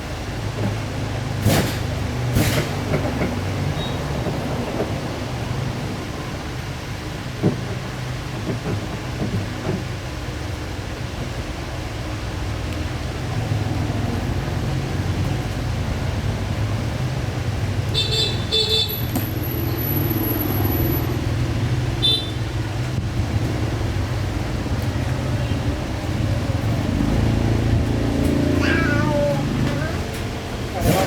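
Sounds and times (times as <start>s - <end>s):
low traffic rumble: 0.0s - 31.0s
vehicle horn beeps: 17.9s - 21.1s, 22.0s - 22.6s.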